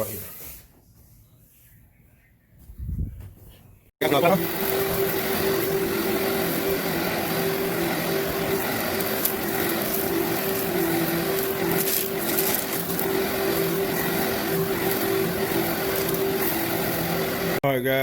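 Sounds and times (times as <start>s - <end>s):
vacuum cleaner running: 4.0s - 17.6s.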